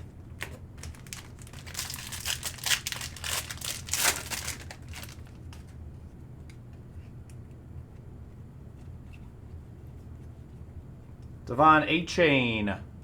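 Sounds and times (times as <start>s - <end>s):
card pack wrapper tearing and crinkling: 0.4s - 5.7s.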